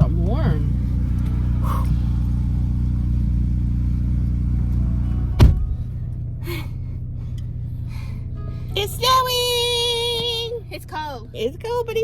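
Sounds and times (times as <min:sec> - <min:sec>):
car engine idling: 0:00.0 - 0:12.0
car door thud: 0:05.2 - 0:06.0.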